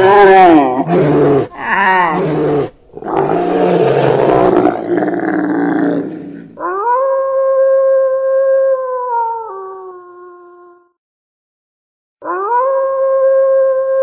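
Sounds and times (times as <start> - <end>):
bear roaring and growling: 0.0 - 7.0
wolf howling: 0.0 - 10.6, 12.2 - 14.0.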